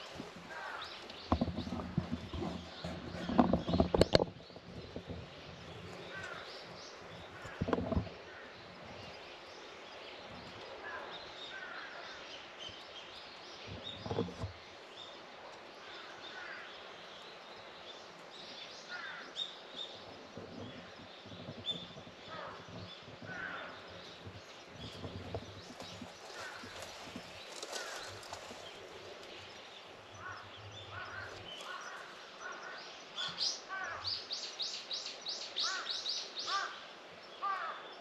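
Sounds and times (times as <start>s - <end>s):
outdoor background hiss: 0.0s - 38.0s
small birds chirping: 0.0s - 38.0s
dull thumps: 1.2s - 5.2s.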